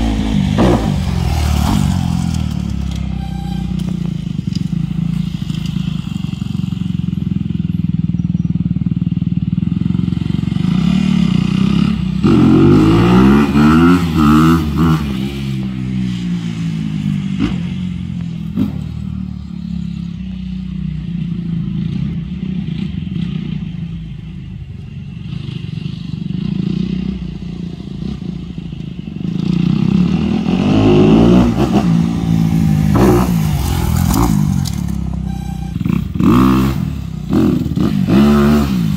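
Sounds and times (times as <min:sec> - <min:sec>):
dirt bike engine revving: 0:00.0 - 0:06.8, 0:09.8 - 0:15.9, 0:29.3 - 0:38.9.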